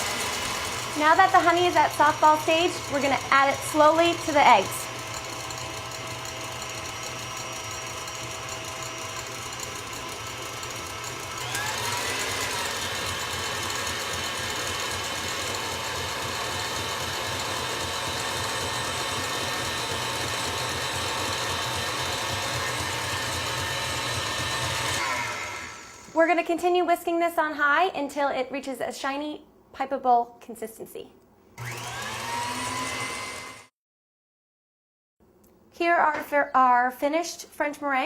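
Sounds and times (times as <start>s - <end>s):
stand mixer whisking: 0.0s - 26.2s, 31.6s - 33.6s.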